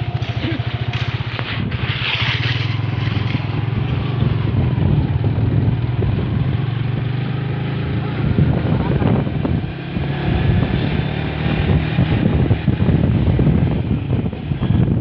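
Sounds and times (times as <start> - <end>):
road and wind noise: 0.0 - 15.0
vehicle engine running: 0.0 - 15.0.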